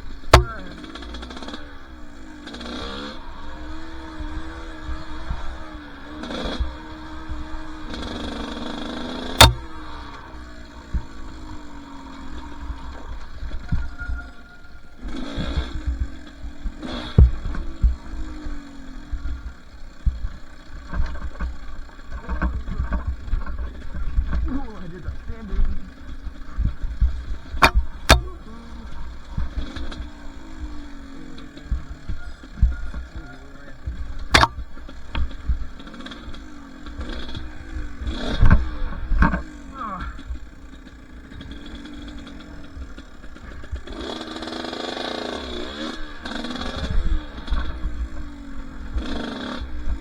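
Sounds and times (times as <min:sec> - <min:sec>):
two-stroke dirt bike engine: 0:00.0 - 0:50.0
sharp knocks: 0:00.1 - 0:01.2, 0:09.2 - 0:11.2, 0:27.5 - 0:31.0, 0:31.6 - 0:35.6.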